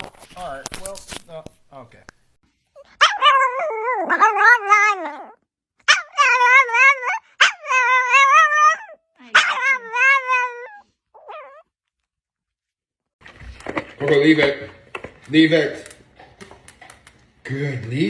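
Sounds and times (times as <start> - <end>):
dog howling: 3.0 - 11.7.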